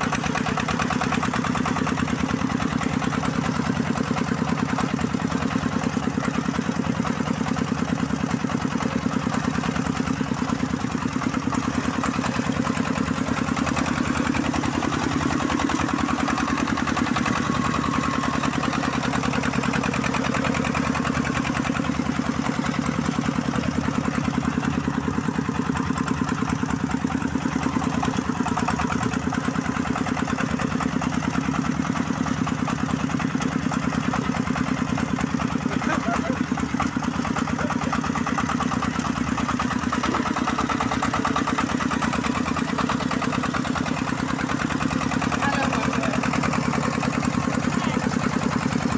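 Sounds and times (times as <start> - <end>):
diesel engine chugging: 0.0 - 48.9.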